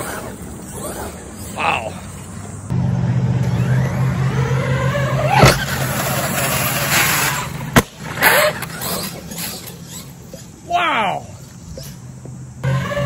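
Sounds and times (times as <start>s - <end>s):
rc truck motor whine: 2.5s - 10.6s, 11.4s - 13.0s.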